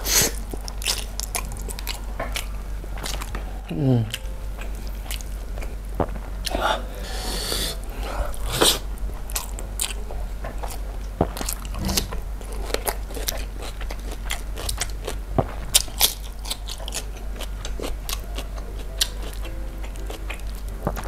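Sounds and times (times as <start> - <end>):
food crunching: 0.0 - 6.6, 7.8 - 21.0
chewing with lip smacks: 0.2 - 3.5, 7.9 - 21.0.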